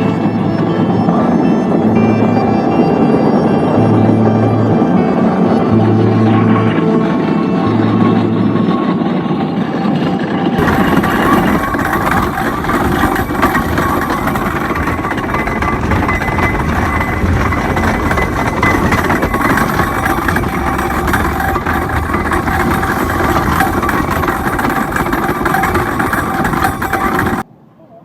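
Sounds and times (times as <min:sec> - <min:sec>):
steam engine rumbling: 0:10.6 - 0:27.4.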